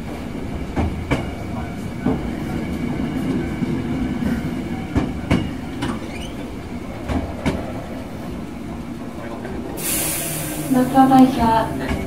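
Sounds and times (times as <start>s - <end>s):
wheels clacking over rail joints: 0.0s - 9.9s
train wheels rumbling on rail: 0.0s - 12.0s.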